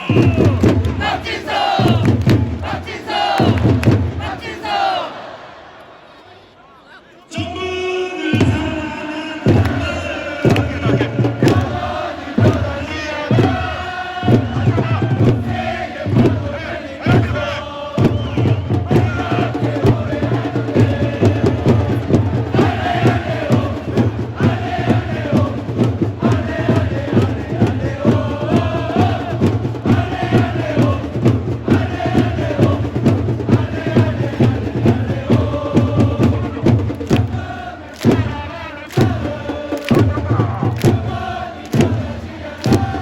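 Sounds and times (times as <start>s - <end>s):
crowd chanting in unison: 0.0s - 43.0s
bass drum beat: 9.5s - 38.4s.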